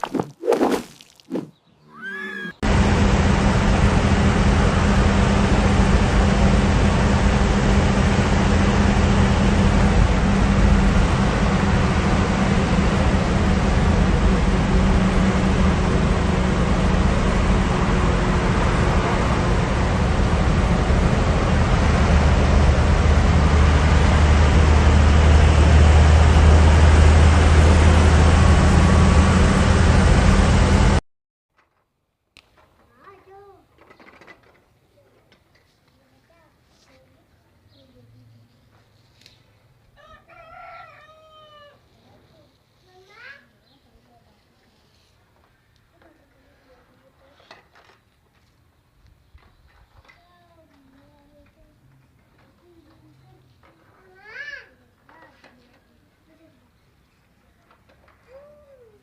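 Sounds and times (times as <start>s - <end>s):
engine running: 2.6s - 31.0s.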